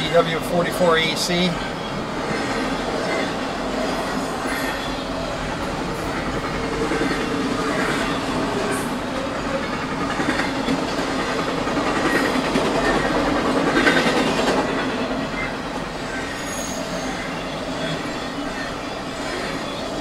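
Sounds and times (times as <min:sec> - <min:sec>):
freight train wheels rumbling: 0:00.0 - 0:20.0
wheels clacking over rail joints: 0:01.6 - 0:16.7.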